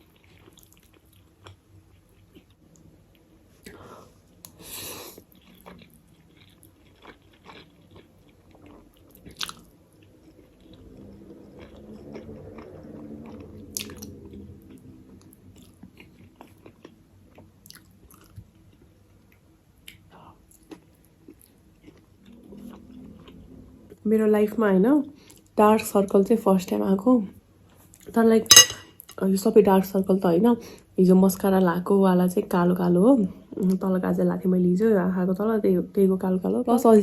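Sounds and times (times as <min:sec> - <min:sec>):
person chewing food: 0:00.0 - 0:03.2, 0:04.4 - 0:14.8, 0:15.6 - 0:18.9, 0:19.8 - 0:23.4.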